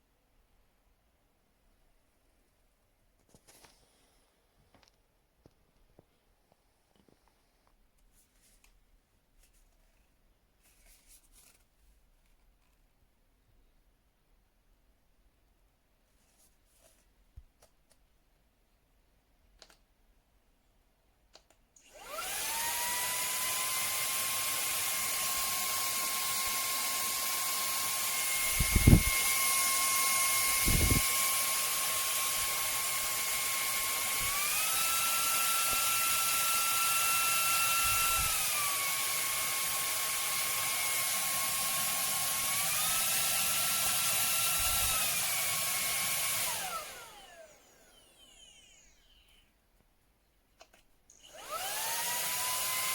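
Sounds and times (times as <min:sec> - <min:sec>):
handheld vacuum cleaner whining: 0:21.8 - 0:49.6, 0:51.1 - 0:52.9.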